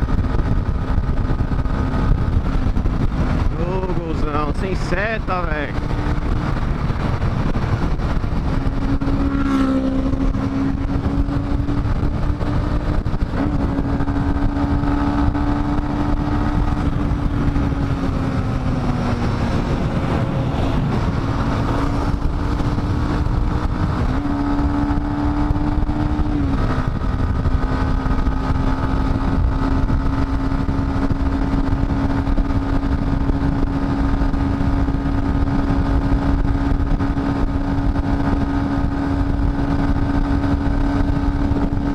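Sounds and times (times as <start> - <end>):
low wind rumble: 0.0 - 41.9
motorcycle engine cruising: 0.0 - 41.9.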